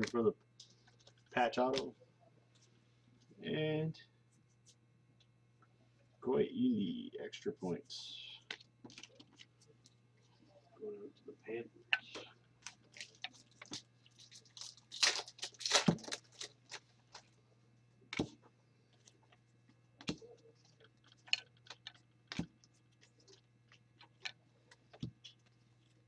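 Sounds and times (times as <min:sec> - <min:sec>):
faint low hum: 0:00.0 - 0:26.0
cards rustling and crinkling: 0:12.1 - 0:17.4
cards clicking and tapping: 0:20.0 - 0:20.3.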